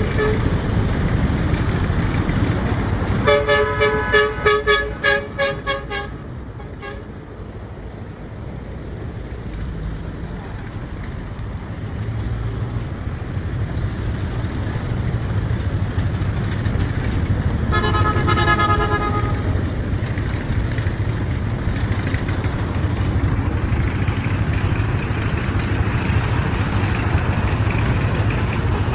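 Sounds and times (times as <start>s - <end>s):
excavator diesel engine rumble: 0.0s - 28.9s
horn toot: 3.2s - 7.1s, 17.7s - 19.7s.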